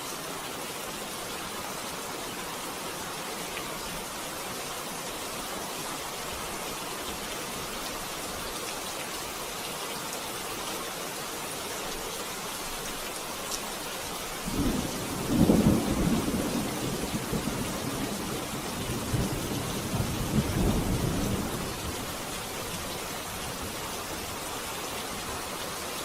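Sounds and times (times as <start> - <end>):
steady rain falling: 0.0 - 26.0
low rumble of thunder: 14.5 - 22.2.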